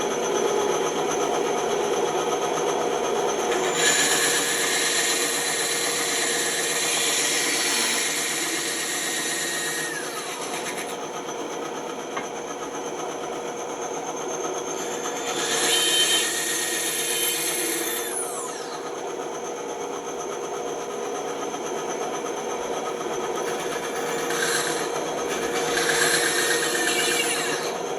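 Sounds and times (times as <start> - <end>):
bandsaw cutting wood: 3.5 - 11.0, 14.8 - 19.0, 23.4 - 27.9.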